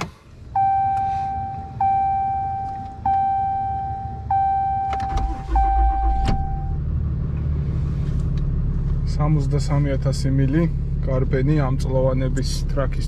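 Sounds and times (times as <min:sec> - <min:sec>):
truck engine starting and idling: 0:00.0 - 0:13.0
dashboard warning chime: 0:00.6 - 0:06.8.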